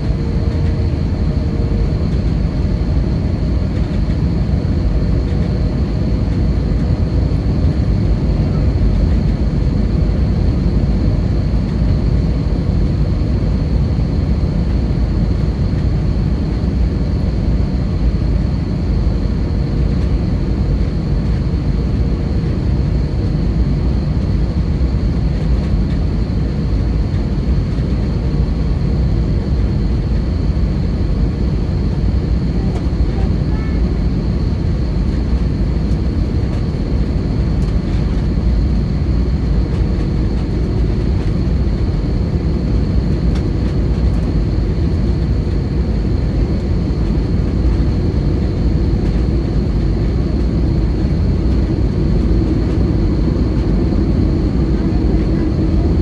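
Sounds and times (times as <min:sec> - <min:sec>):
jet engine and airflow rumble: 0:00.0 - 0:56.0.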